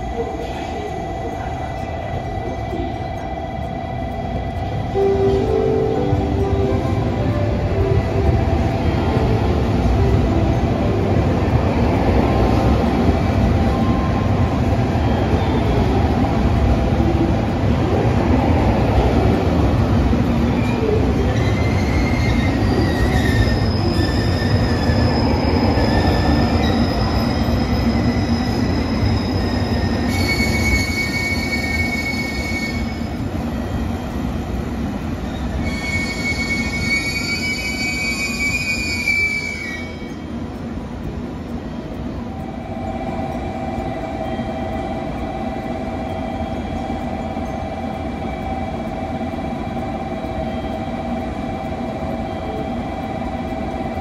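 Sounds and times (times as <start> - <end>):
train running on rails: 0.0 - 54.0
high-pitched wheel squeals: 20.5 - 33.8, 35.2 - 40.3.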